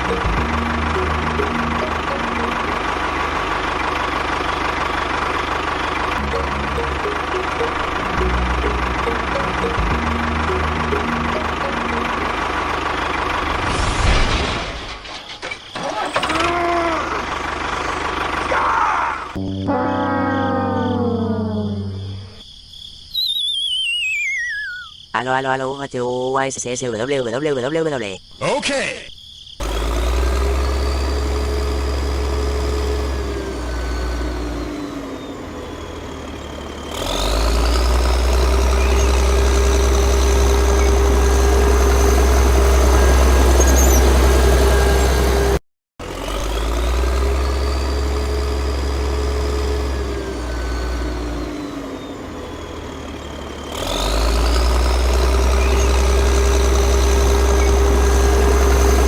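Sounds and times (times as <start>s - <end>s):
engine running with low hum: 0.0s - 22.4s, 29.6s - 59.0s.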